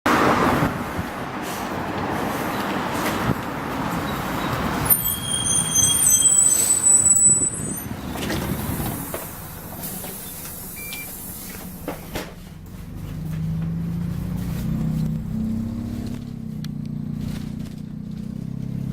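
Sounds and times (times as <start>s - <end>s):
low bus engine: 0.0s - 18.9s
bus squealing: 0.5s - 12.7s
air hiss: 8.6s - 11.9s.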